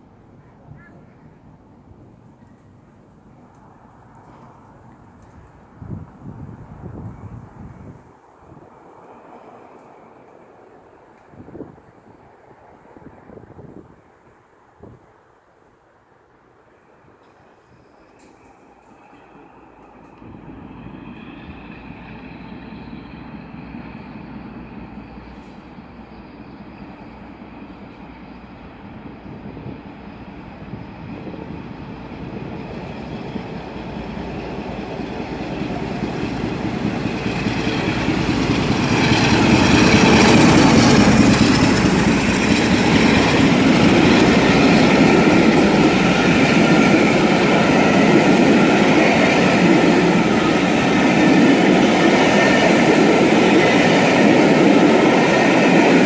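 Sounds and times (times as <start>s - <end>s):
diesel locomotive engines: 0.0s - 14.5s, 16.5s - 56.0s
train wheels on rails: 17.2s - 56.0s.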